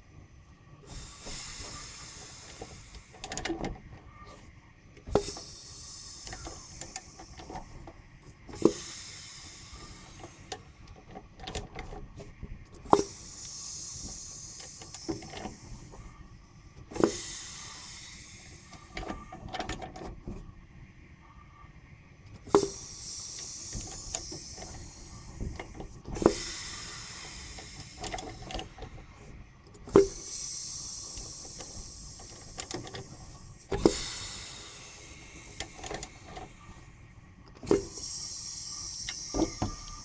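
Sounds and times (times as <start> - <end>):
small engine clicks: 0.8 - 20.5, 22.2 - 40.0
hissing: 4.1 - 10.6, 22.4 - 40.0.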